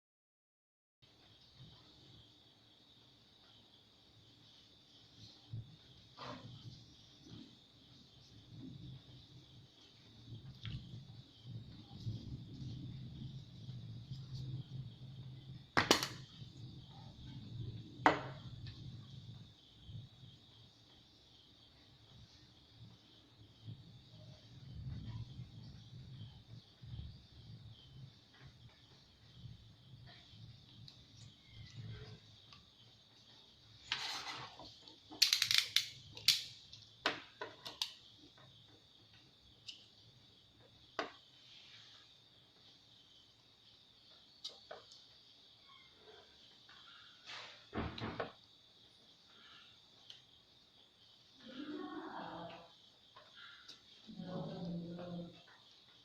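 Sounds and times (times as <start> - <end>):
faint high hiss: 1.1 - 56.0
short scrape: 33.8 - 34.6
plastic and metal parts handled: 35.2 - 36.5.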